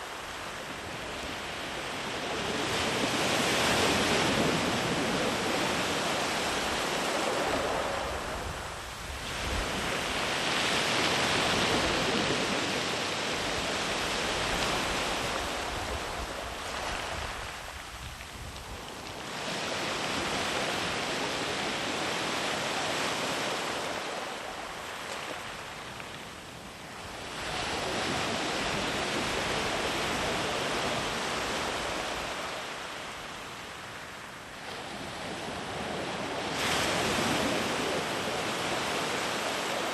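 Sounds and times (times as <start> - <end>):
waves breaking on beach: 0.0 - 39.9
wind on microphone: 0.1 - 24.8.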